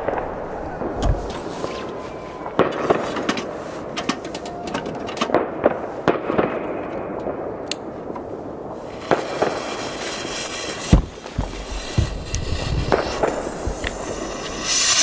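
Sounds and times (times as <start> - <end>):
firecracker bangs: 9.0 - 15.0.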